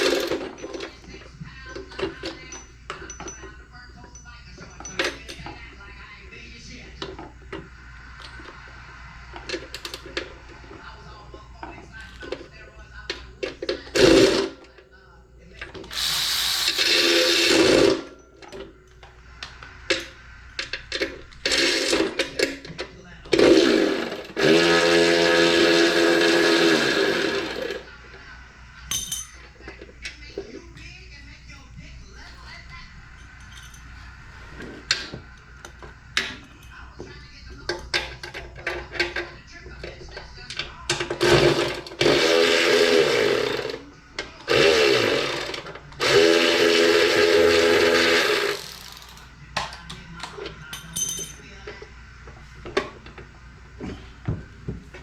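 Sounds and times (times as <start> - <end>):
metal parts and tools clicking: 1.7 - 5.7, 28.9 - 30.2, 33.2 - 34.0, 48.6 - 51.5
power drill running: 14.0 - 14.5, 15.8 - 18.1, 21.4 - 22.2, 23.4 - 27.9, 41.2 - 43.8, 44.5 - 49.2.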